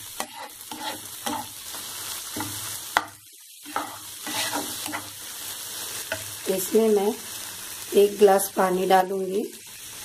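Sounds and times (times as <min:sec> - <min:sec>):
spatula stirring and scraping: 0:00.0 - 0:06.3
masala sizzling in a frying pan: 0:00.0 - 0:10.0.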